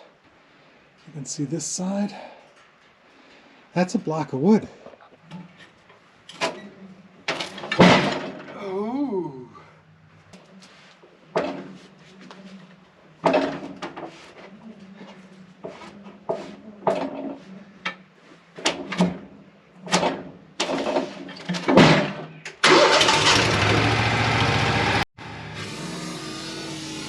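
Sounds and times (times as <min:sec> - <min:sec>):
knocks and clunks: 0:07.3 - 0:08.6, 0:13.2 - 0:14.2, 0:19.9 - 0:22.5
sawmill engine running: 0:22.7 - 0:27.0.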